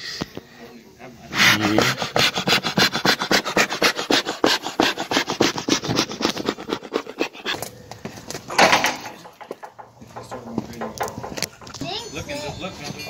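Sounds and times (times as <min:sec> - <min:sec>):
rapid scraping strokes: 0:01.3 - 0:07.6.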